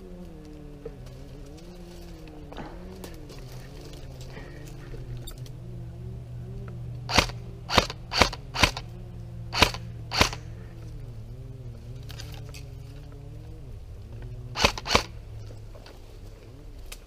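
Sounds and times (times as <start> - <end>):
low hum: 0.0 - 17.0
airsoft gun shots: 7.1 - 8.8, 9.5 - 10.5, 14.6 - 15.1.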